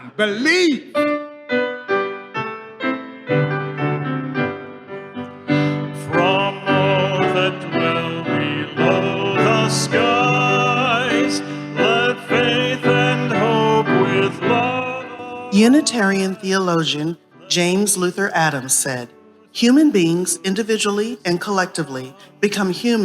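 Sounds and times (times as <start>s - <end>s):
piano playing: 0.0s - 23.0s
person singing: 5.5s - 23.0s.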